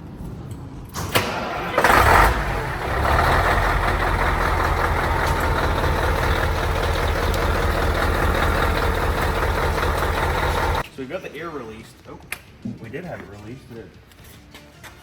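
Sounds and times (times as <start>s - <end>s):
diesel truck engine starting and idling: 0.9s - 10.8s.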